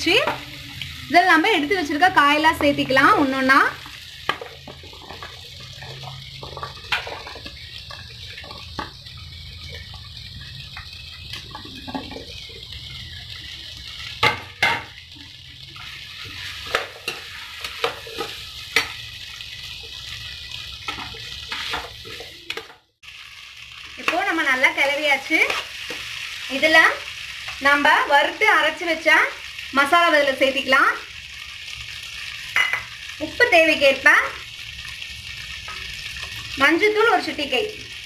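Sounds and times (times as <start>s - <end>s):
vegetables sizzling in oil: 0.0s - 38.0s
steel ladle scraping and knocking pan: 4.2s - 7.5s.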